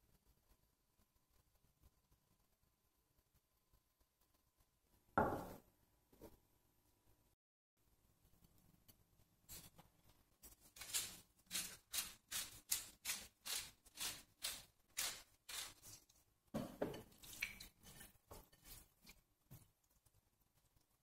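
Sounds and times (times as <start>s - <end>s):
hands squeezing wet raw chicken: 10.6s - 16.2s, 17.1s - 20.1s
pepper mill grinding: 10.7s - 16.0s.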